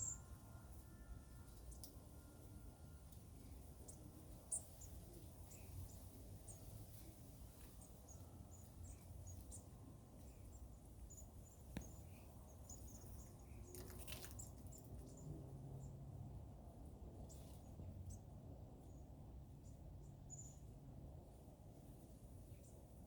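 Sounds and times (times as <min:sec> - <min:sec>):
small birds chirping: 0:00.0 - 0:00.3, 0:02.8 - 0:16.2, 0:17.1 - 0:20.8, 0:22.4 - 0:23.0
brief rustle: 0:13.7 - 0:14.7.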